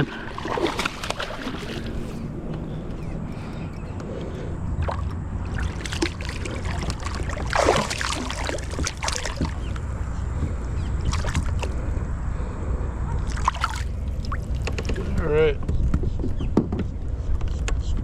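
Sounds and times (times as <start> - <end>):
fish thrashing and splashing: 0.0 - 2.3, 4.8 - 9.8, 11.0 - 11.8, 13.2 - 15.0
steady low rumble: 0.0 - 18.0.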